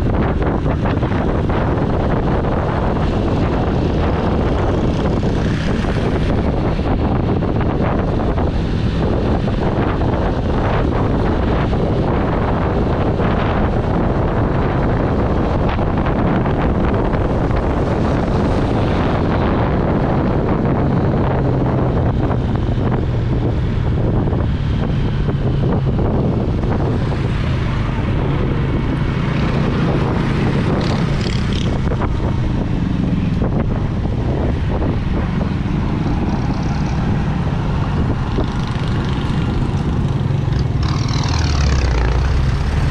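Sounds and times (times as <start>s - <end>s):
wind buffeting microphone: 0.0s - 42.9s
motorcycle engine running: 25.6s - 42.9s.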